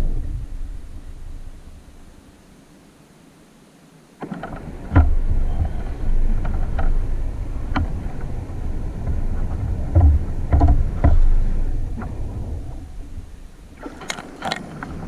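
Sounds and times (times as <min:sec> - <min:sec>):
low rumble of kayak handling: 0:00.0 - 0:02.4, 0:04.2 - 0:15.0
sharp knocks on kayak: 0:04.2 - 0:07.0, 0:09.0 - 0:12.2.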